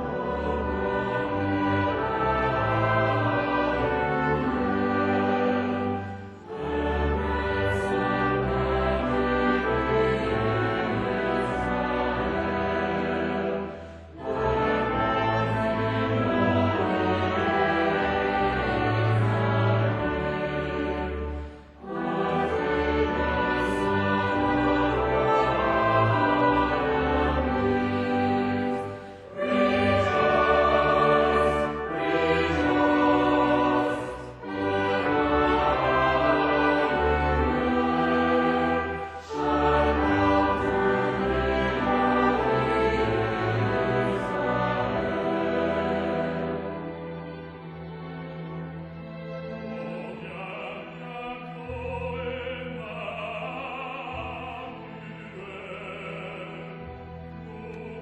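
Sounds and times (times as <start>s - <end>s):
voices singing held notes: 0.0s - 46.6s
choir and string orchestra: 0.0s - 58.0s.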